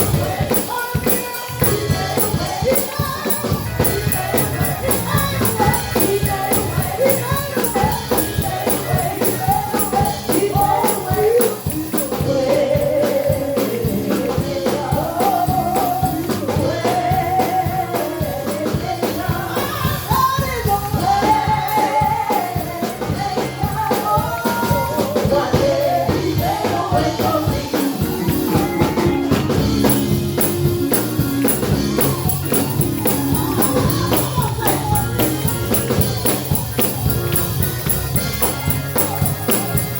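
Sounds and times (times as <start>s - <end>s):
tambourine and drum rhythm: 0.0s - 39.9s
voices singing gospel: 0.0s - 39.9s.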